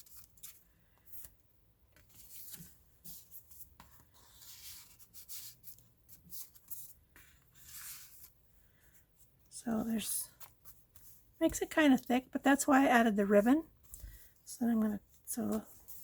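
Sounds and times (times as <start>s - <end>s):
paper and card rustling: 0.0s - 8.4s.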